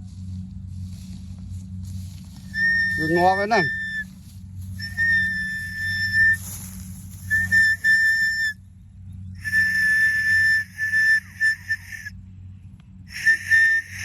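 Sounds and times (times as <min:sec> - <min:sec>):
low engine-like hum: 0:00.0 - 0:14.0
high-pitched whistling tone: 0:02.4 - 0:04.1, 0:04.7 - 0:08.6, 0:09.4 - 0:12.1, 0:13.1 - 0:14.0.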